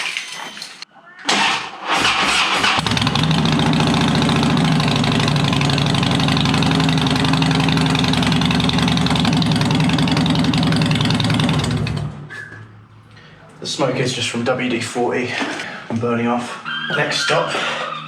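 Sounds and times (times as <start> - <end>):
motorcycle engine idling: 2.8 - 12.2.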